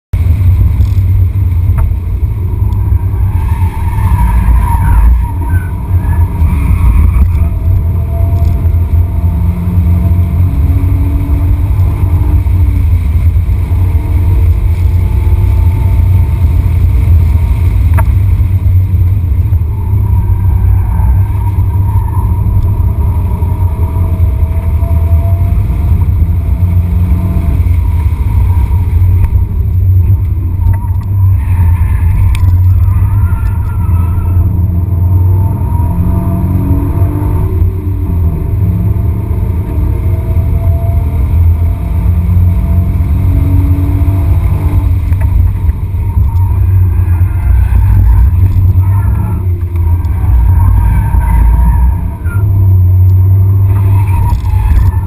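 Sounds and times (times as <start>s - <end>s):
road noise: 0.0s - 55.0s
car engine droning under load: 0.1s - 55.0s.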